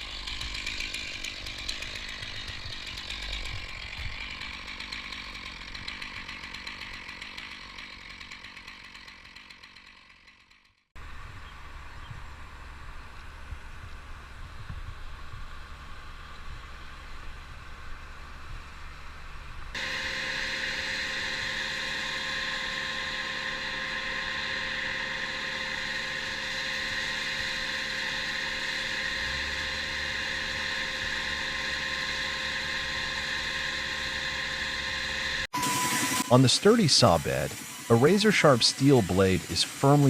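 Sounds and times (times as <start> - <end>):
low engine-like rumble: 11.0 - 19.8
steady machine whine: 11.0 - 40.0.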